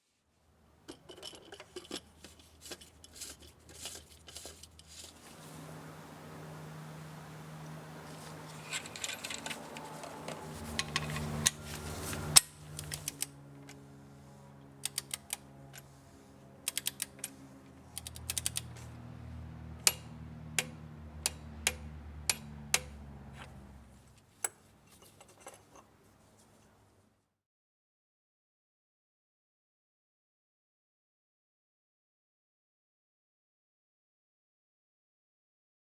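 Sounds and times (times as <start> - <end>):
low humming tones: 5.0 - 23.9
sharp clicks and taps: 14.8 - 15.4, 16.7 - 18.8.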